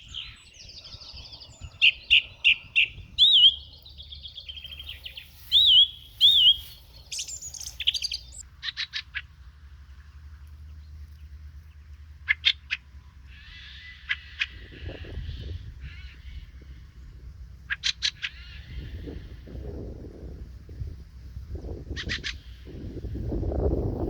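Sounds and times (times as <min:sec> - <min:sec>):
steady low rumble: 0:00.0 - 0:08.6
songbirds singing: 0:00.0 - 0:24.0.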